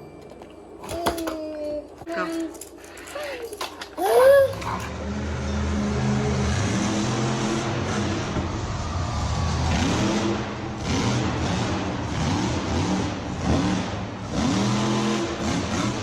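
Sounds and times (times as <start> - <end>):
children making engine noises: 0.9 - 7.9.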